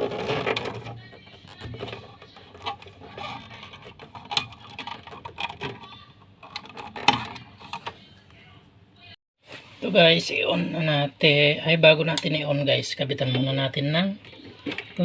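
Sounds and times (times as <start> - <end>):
clicks and rattles of handling meter: 0.2 - 7.9.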